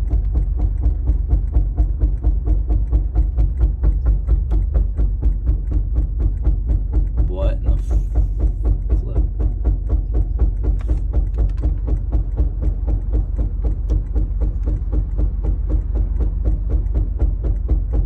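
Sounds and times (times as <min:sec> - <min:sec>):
rhythmic knocking from car: 0:00.0 - 0:18.0
steady low drone: 0:00.0 - 0:18.0.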